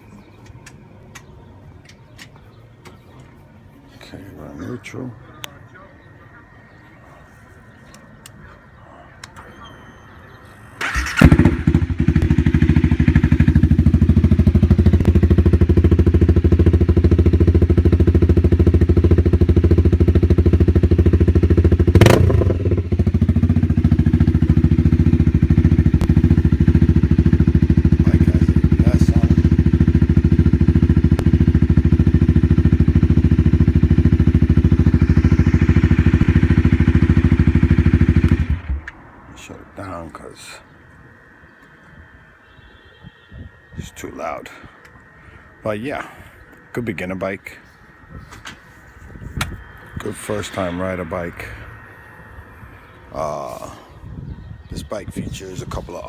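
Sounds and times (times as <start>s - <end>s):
motorcycle engine starting and idling: 9.2s - 39.5s.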